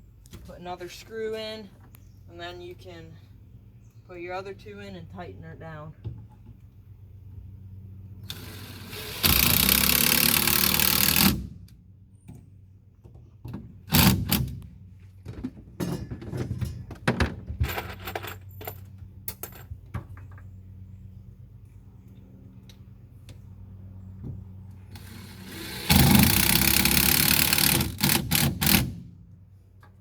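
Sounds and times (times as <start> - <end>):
cordless drill driving screw: 8.3 - 11.4, 24.9 - 28.9.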